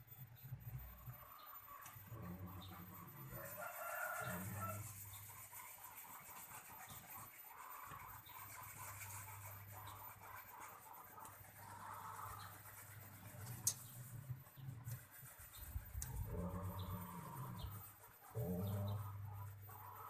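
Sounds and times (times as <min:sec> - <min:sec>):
faint low hum: 0:00.0 - 0:20.0
chicken clucking: 0:00.9 - 0:20.0
rooster crowing: 0:03.1 - 0:05.0.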